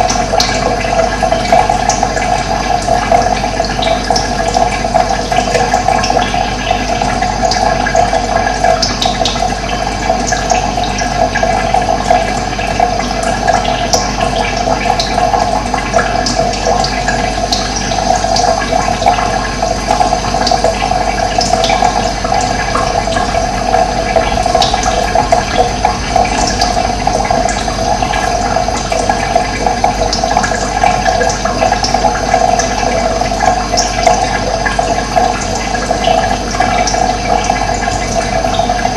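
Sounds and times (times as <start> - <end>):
water rushing: 16.5 - 38.9.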